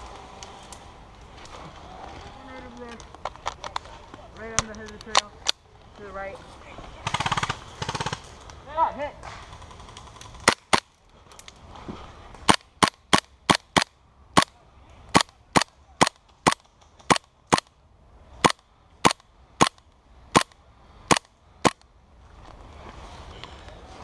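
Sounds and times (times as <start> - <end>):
airsoft gun firing: 7.0 - 8.2.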